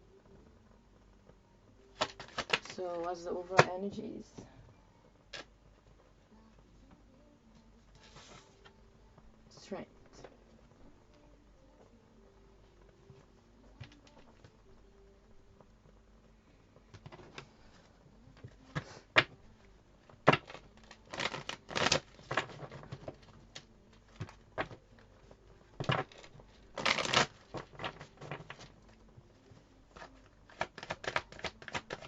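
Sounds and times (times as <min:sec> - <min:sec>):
cards being shuffled: 0:02.0 - 0:03.8, 0:08.0 - 0:08.6, 0:20.2 - 0:24.8, 0:25.8 - 0:28.7, 0:29.9 - 0:32.0.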